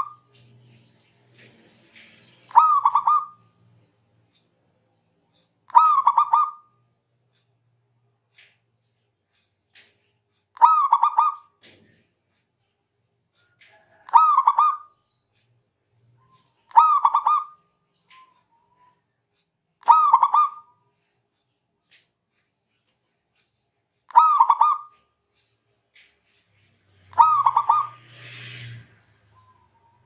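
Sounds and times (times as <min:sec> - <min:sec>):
dove cooing: 0:02.5 - 0:03.4, 0:05.7 - 0:06.7, 0:13.8 - 0:14.9, 0:16.7 - 0:17.6, 0:19.8 - 0:20.7, 0:24.1 - 0:24.9, 0:27.1 - 0:28.0.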